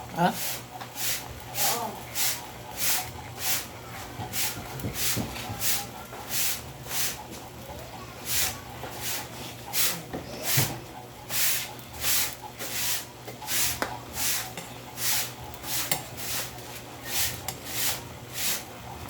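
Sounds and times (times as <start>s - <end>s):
rasping rubbing strokes: 11.3s - 18.7s.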